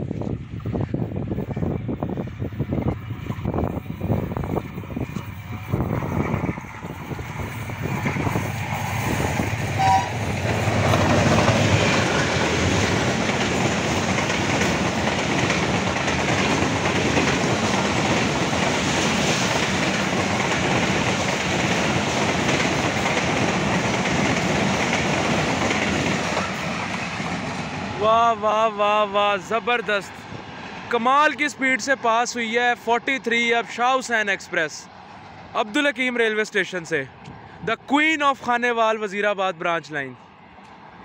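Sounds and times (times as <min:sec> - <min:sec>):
train wheels clattering on rails: 0:03.0 - 0:27.9
train horn: 0:09.7 - 0:10.3.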